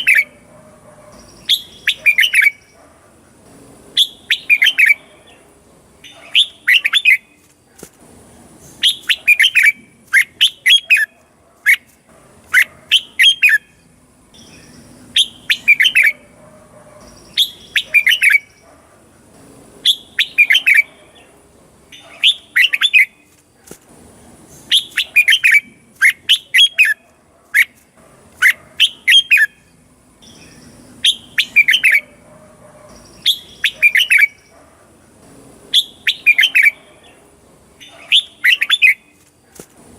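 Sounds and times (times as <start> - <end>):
bird singing whistled notes: 0.0 - 0.4, 1.2 - 2.8, 4.0 - 5.1, 8.8 - 11.1, 12.9 - 13.8, 14.4 - 16.2, 17.0 - 18.6, 19.8 - 21.0, 24.6 - 27.0, 28.8 - 32.1, 32.9 - 34.5, 35.7 - 36.9, 37.8 - 39.2.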